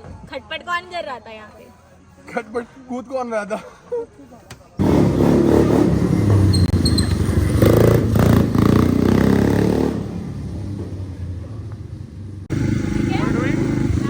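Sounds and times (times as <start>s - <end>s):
atv engine under throttle: 4.8s - 10.5s, 12.5s - 14.0s.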